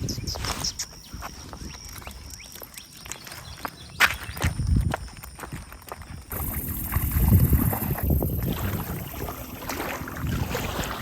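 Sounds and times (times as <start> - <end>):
wind rumbling on microphone: 0.0 - 2.5, 3.5 - 11.0
lake water sounds: 6.3 - 11.0.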